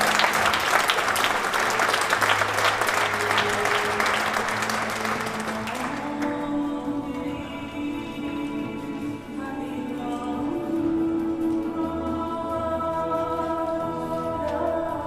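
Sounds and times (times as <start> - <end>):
audience applauding: 0.0 - 6.2
music playing: 0.0 - 15.0.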